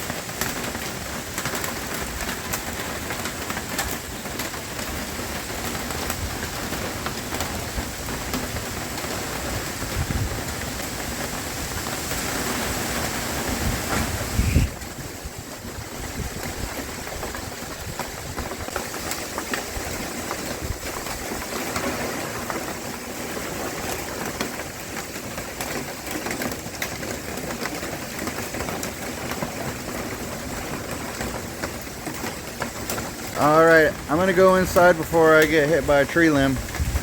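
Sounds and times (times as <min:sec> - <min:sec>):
wind blowing hard with rain: 0:00.0 - 0:37.0.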